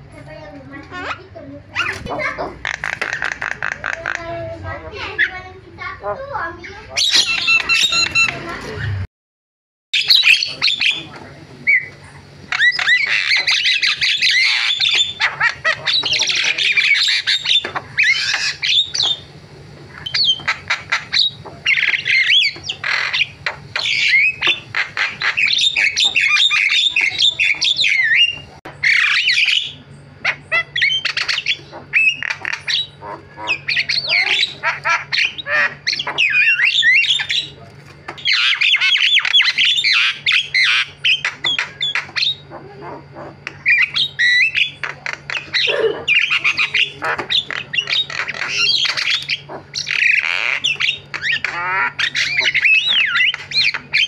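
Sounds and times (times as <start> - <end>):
myna chattering song: 0.0 - 9.1.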